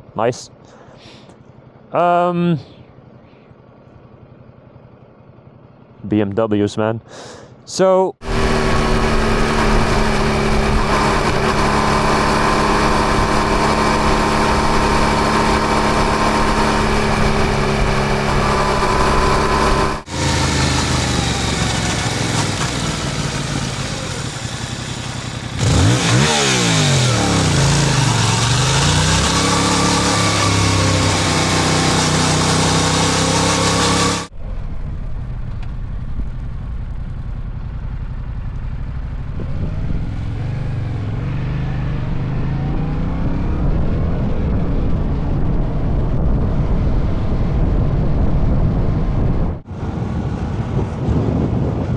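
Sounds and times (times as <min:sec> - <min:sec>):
motorcycle engine running: 0:03.0 - 0:06.0, 0:08.2 - 0:49.7
wind and road noise: 0:08.2 - 0:51.9.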